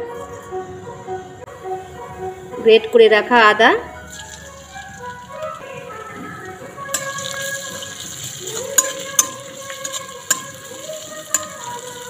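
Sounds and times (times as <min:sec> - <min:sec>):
seeds sizzling in hot oil: 0:04.0 - 0:12.0
metal spoon scraping pan: 0:06.2 - 0:12.0
spoon clicking against pan: 0:06.9 - 0:07.4, 0:08.6 - 0:11.9.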